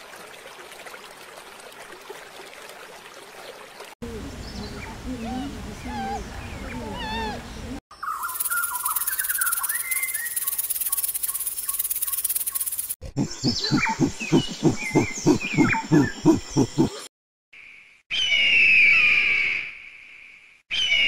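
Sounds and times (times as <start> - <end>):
high insect-like drone: 8.2 - 13.0
loud rhythmic animal calls: 8.3 - 17.1.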